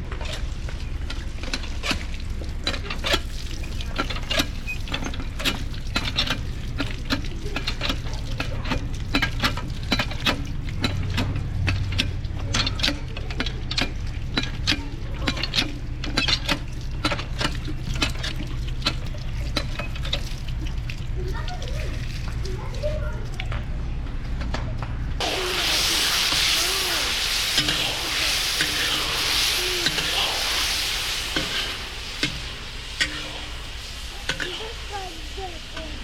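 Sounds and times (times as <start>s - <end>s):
low rumble: 25.2s - 36.0s.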